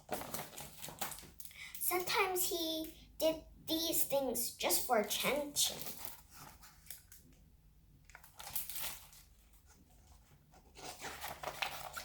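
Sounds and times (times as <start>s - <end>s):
book pages rustling: 0.0s - 1.4s, 5.7s - 7.3s, 8.1s - 12.0s.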